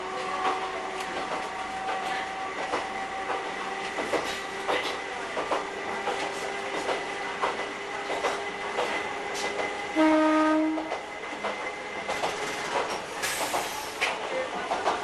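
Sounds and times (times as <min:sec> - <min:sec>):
wheels clicking over rail joints: 0:10.8 - 0:15.0.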